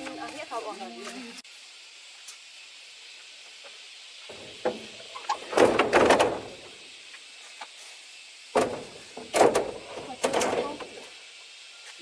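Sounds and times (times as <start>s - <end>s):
knocks and scrapes: 4.3s - 6.6s.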